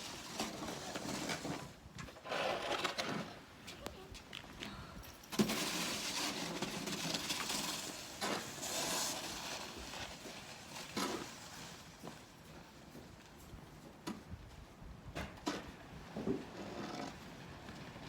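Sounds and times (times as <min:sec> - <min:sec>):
snow shovel scraping snow: 0:00.0 - 0:03.4, 0:05.3 - 0:12.3, 0:16.5 - 0:17.2.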